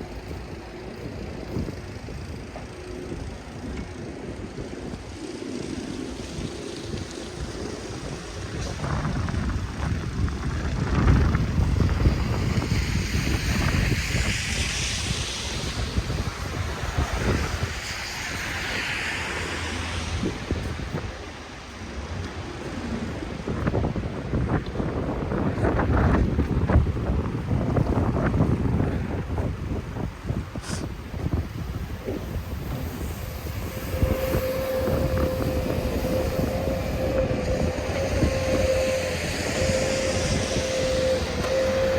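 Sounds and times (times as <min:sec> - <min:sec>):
wind buffeting microphone: 0:00.0 - 0:41.9
heavy vehicle rumble: 0:25.5 - 0:41.9
broad hiss: 0:30.5 - 0:41.9
steady whine: 0:31.1 - 0:41.9.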